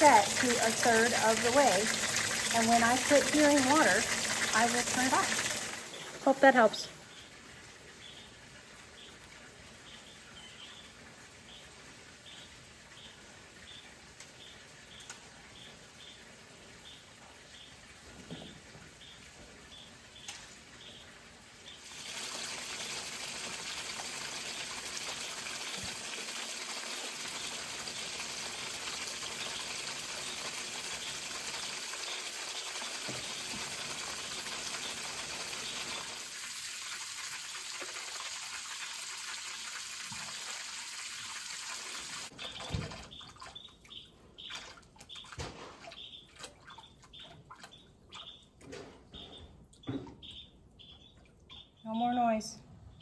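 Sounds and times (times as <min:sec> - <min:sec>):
hose water splashing: 0:00.0 - 0:09.7, 0:19.4 - 0:48.3.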